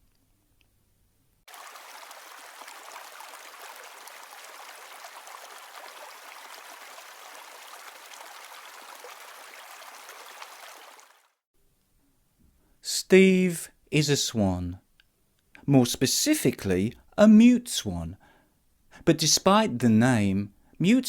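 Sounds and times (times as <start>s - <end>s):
stream babbling: 1.5s - 11.4s.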